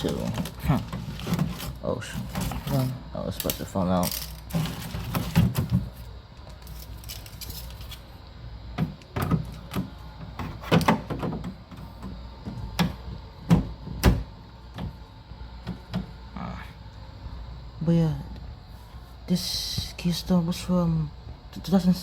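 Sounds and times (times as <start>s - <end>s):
plastic parts knocking and rattling: 0.0s - 8.0s, 8.8s - 14.2s
faint low hum: 0.0s - 22.0s.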